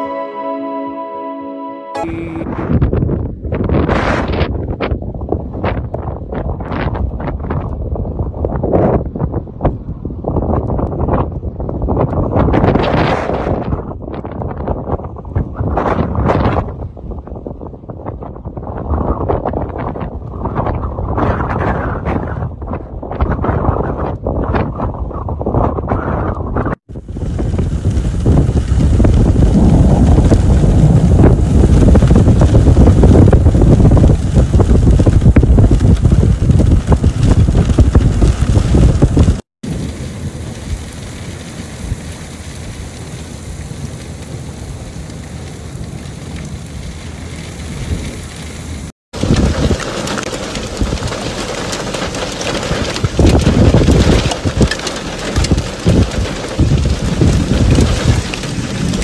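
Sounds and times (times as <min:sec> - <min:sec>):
wind buffeting the microphone: 0:02.5 - 0:42.1, 0:46.8 - 0:59.0
rain hissing: 0:27.0 - 0:59.0.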